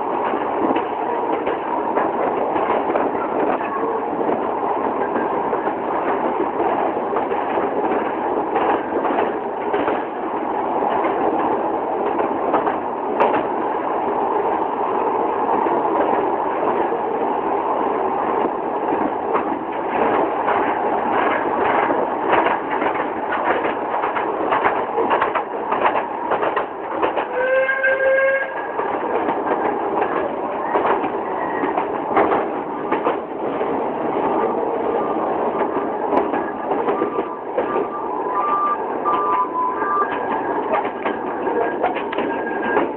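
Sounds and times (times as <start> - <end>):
train rumbling on track: 0.0 - 42.9
wheels clacking over rail joints: 0.2 - 10.2, 10.9 - 13.5, 18.9 - 34.5, 39.1 - 42.9
train whistle: 27.3 - 28.8, 37.7 - 40.2.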